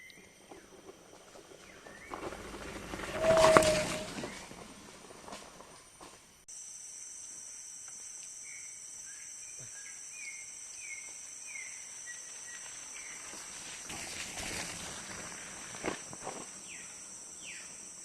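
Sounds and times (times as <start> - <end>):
insects droning high-pitched: 0.0 - 18.0
bird whistling falling notes: 3.1 - 4.5.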